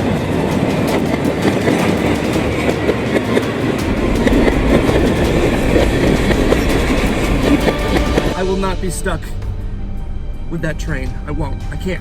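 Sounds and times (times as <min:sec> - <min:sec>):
train wheels clacking over rail joints: 0:00.0 - 0:08.4
train rumble: 0:00.0 - 0:12.0.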